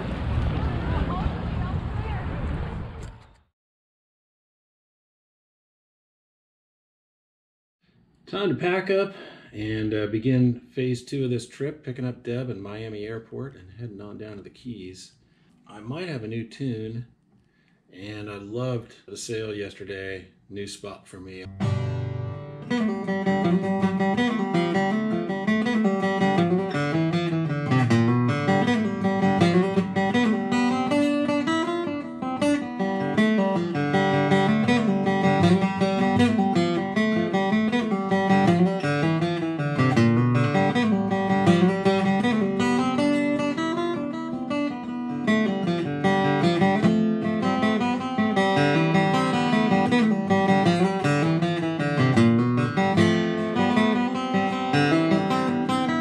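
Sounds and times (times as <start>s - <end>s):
acoustic guitar playing: 8.3s - 14.9s, 21.3s - 56.0s.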